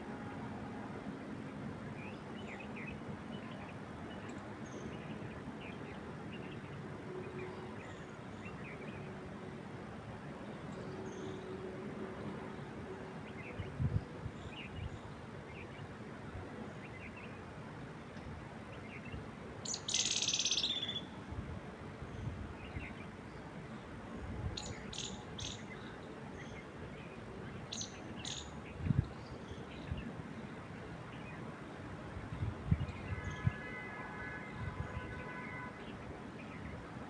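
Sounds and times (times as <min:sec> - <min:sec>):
wind through trees: 0:00.0 - 0:37.0
birds chirping and trilling: 0:19.0 - 0:21.1, 0:24.6 - 0:26.6, 0:27.5 - 0:30.0.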